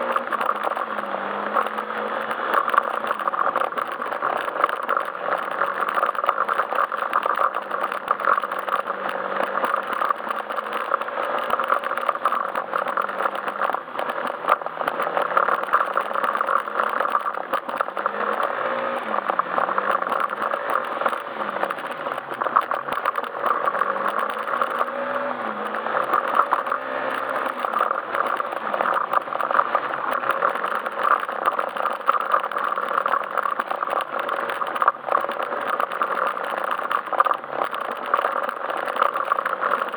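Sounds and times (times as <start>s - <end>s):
scooter engine running: 0.0s - 39.9s
tyre noise: 0.0s - 39.9s.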